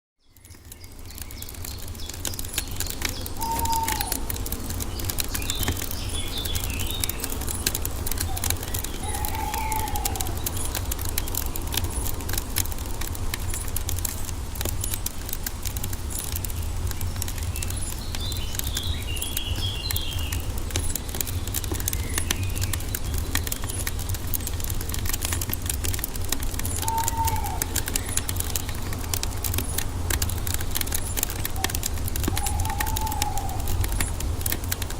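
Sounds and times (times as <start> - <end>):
wood fire crackling and popping: 0.3 - 34.9
high bird chirps: 3.2 - 4.2
bird whistles: 3.4 - 4.2.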